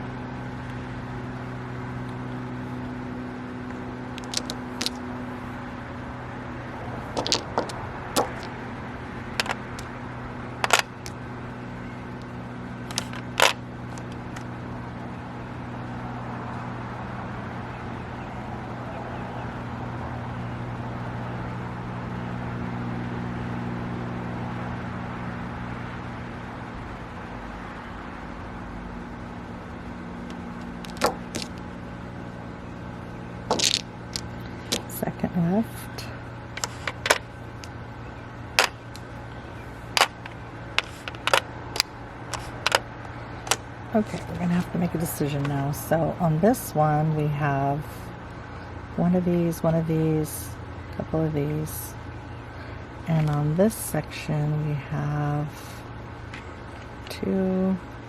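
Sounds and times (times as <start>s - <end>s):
steady low hum: 0.0s - 58.0s
mahjong tiles clicking: 4.1s - 5.0s, 7.2s - 8.6s, 9.3s - 9.9s, 12.8s - 14.2s, 30.8s - 31.6s, 33.5s - 35.0s, 39.9s - 42.8s.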